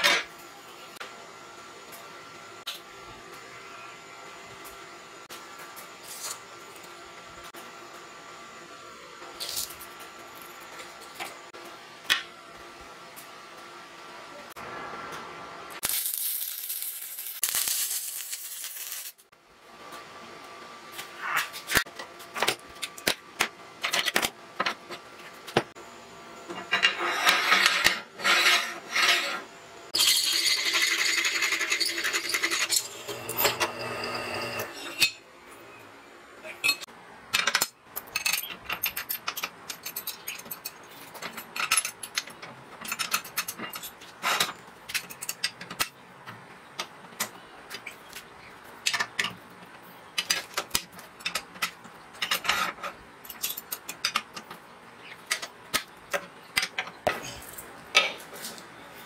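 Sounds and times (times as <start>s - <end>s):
welding crackle: 15.8s - 19.3s.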